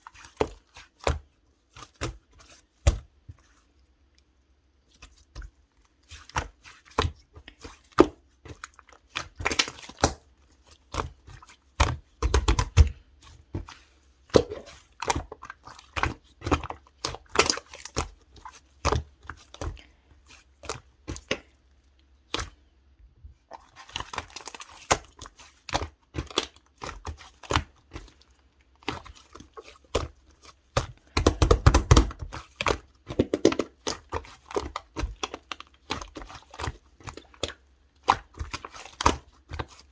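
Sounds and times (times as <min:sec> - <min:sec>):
slime squished by hand: 0:13.6 - 0:21.5, 0:28.8 - 0:39.8.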